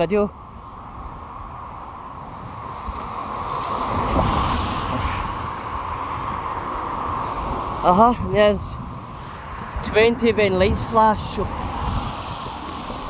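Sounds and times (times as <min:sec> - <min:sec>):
tyres hissing on wet road: 0:02.2 - 0:08.0, 0:11.4 - 0:13.0.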